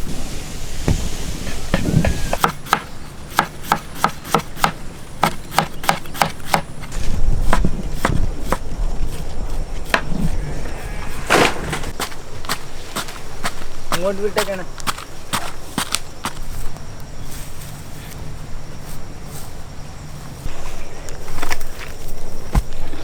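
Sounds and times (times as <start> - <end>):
knife chopping on a board: 1.7 - 6.7.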